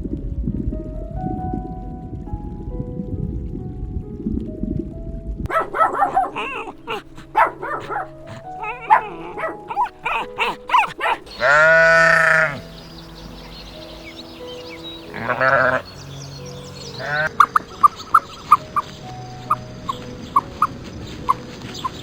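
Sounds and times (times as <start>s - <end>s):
sheep bleating: 11.0s - 12.6s, 15.1s - 15.9s.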